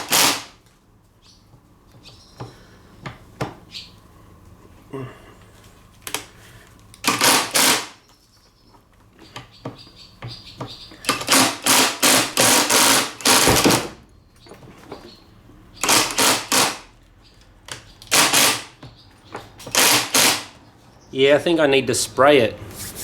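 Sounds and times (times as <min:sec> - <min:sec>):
impact driver hammering: 0:00.0 - 0:00.6, 0:07.0 - 0:08.0, 0:11.1 - 0:14.0, 0:15.8 - 0:16.9, 0:18.0 - 0:18.8, 0:19.6 - 0:20.6.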